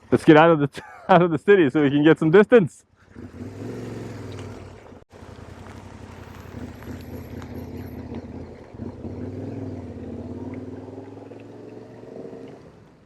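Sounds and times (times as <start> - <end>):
motorcycle engine running: 2.9 - 12.9.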